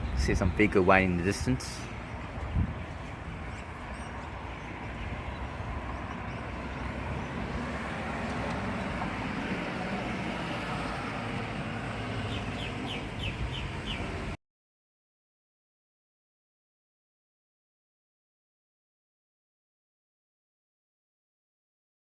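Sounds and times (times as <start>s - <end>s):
low rumbling outdoor noise: 0.0s - 14.4s
bird chirps: 12.2s - 14.2s.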